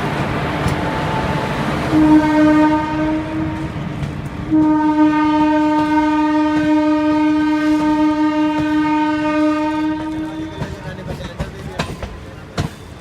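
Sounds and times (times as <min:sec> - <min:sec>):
train wheels clicking: 0:00.0 - 0:01.9, 0:03.5 - 0:13.0
locomotive horn blast: 0:00.8 - 0:03.9, 0:04.5 - 0:10.8.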